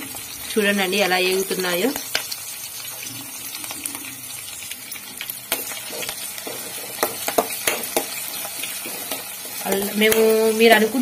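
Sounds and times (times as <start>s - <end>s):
onions sizzling in hot oil: 0.0s - 11.0s
metal spoon scraping a pan: 5.0s - 10.8s.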